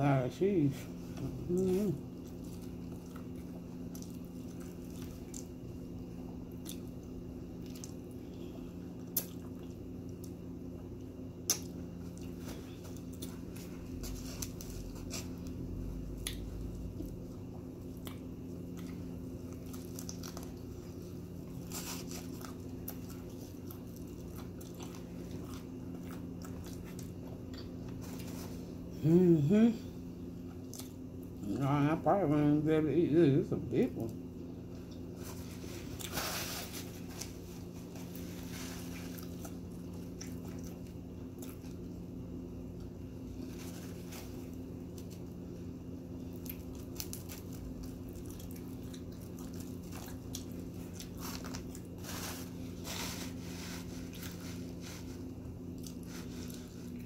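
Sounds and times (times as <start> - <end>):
steady low hum: 0.0 - 57.0
chewing and wet mouth noises: 1.2 - 28.5, 30.4 - 31.4, 34.0 - 45.4, 46.1 - 52.3, 54.0 - 57.0.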